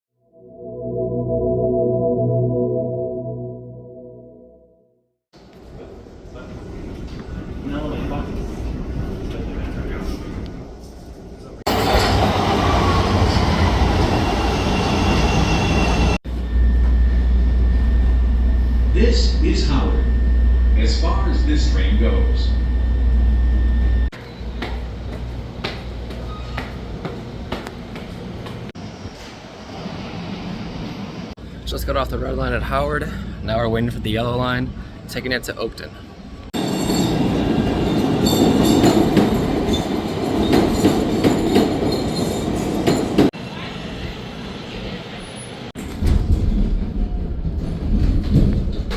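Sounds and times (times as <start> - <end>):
train rumbling and rattling on rails: 5.4 - 19.8, 24.1 - 31.8, 36.2 - 48.9
train rumble: 36.3 - 48.9.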